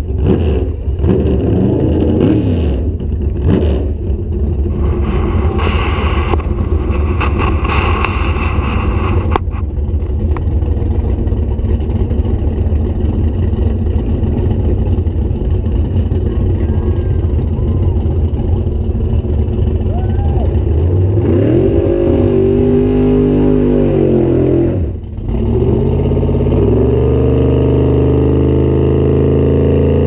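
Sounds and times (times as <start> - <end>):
car engine revving: 0.0 - 30.0
car engine idling: 2.8 - 22.7, 24.9 - 26.6.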